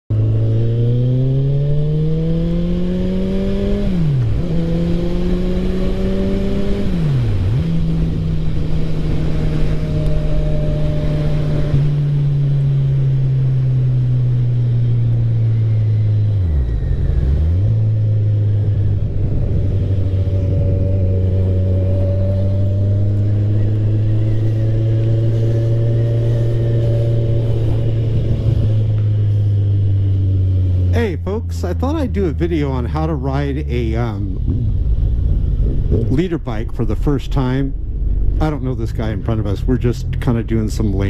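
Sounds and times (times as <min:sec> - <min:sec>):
motorcycle engine accelerating: 0:00.1 - 0:41.0
wind rush: 0:16.6 - 0:30.9, 0:33.7 - 0:41.0.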